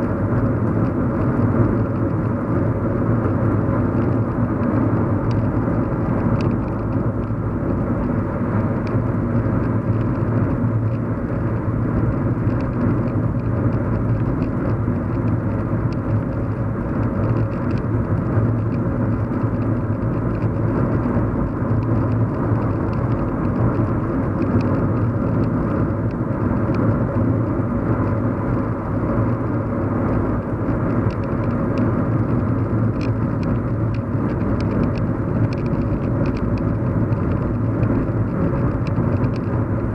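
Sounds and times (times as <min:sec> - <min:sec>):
car cabin road rumble: 0:00.0 - 0:39.9
faint light ticks: 0:06.4 - 0:07.4, 0:31.0 - 0:39.6.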